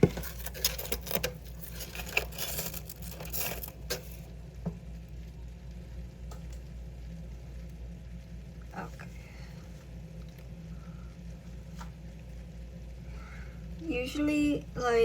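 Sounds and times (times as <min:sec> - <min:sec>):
clinks of small items handled: 0:00.1 - 0:04.3.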